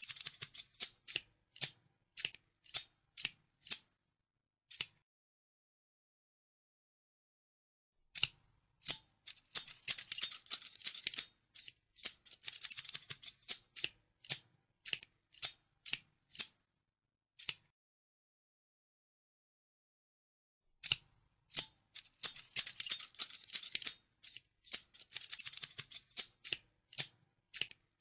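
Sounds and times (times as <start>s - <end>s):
scissors snipping: 0.0s - 3.9s, 4.7s - 5.0s, 8.1s - 16.6s, 17.4s - 17.7s, 20.8s - 27.8s.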